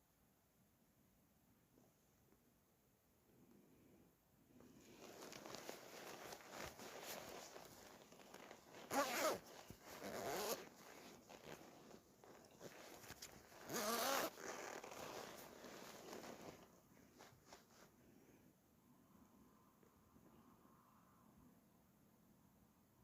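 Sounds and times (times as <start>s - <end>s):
soft rustling: 4.5s - 18.4s
zipper pulled: 4.9s - 16.6s.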